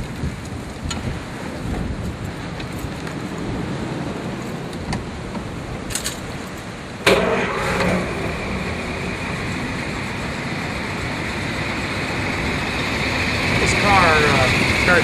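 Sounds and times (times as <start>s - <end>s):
car engine starting and idling: 7.0s - 15.0s.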